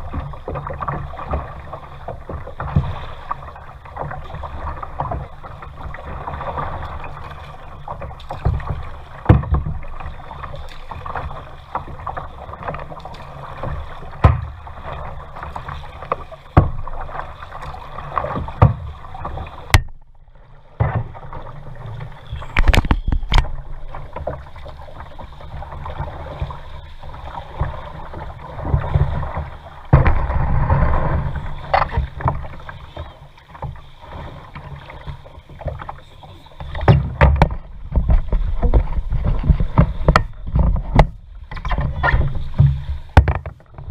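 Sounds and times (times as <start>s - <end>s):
water washing against kayak hull: 0.0s - 43.9s
sharp knocks: 29.9s - 30.4s.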